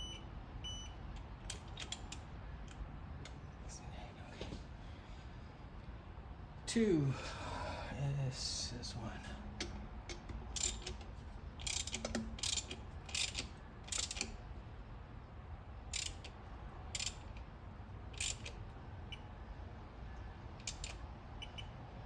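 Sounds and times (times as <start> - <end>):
hand ratchet clicking: 9.6 - 14.4, 15.9 - 17.4, 18.1 - 18.6, 20.6 - 21.6.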